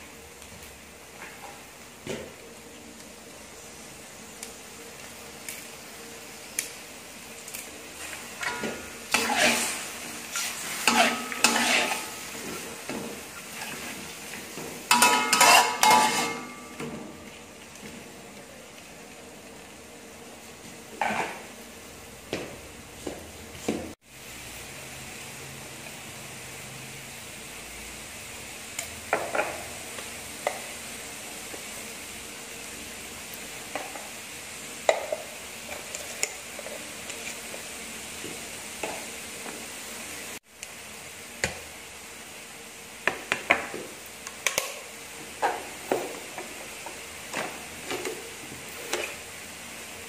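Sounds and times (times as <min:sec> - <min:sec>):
squid sizzling in a wok: 0:00.0 - 0:50.0
metal utensils scraping a wok: 0:08.0 - 0:12.8, 0:14.9 - 0:16.8, 0:21.0 - 0:21.5.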